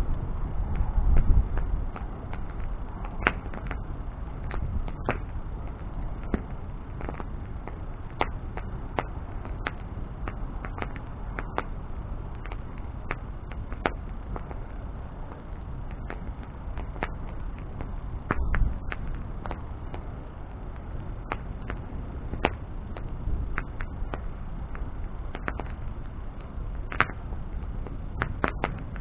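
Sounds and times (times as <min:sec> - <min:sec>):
bonfire crackling: 0:00.0 - 0:29.0.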